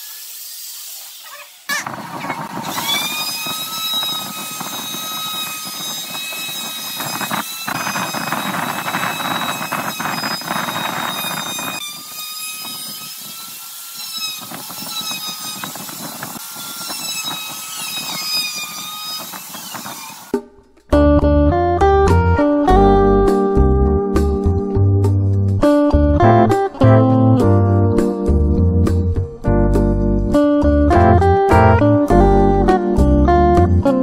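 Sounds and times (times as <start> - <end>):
power tool whining: 0.0 - 20.3
harsh cutting or sanding noise: 0.0 - 20.4.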